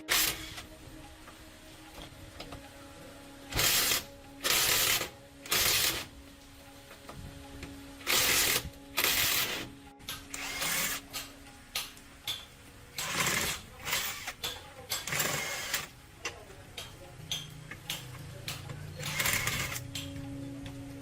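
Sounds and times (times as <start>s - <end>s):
work tool bursts: 0.0s - 0.7s, 3.5s - 6.1s, 8.0s - 9.7s, 10.3s - 11.2s, 13.0s - 15.9s, 19.0s - 19.8s.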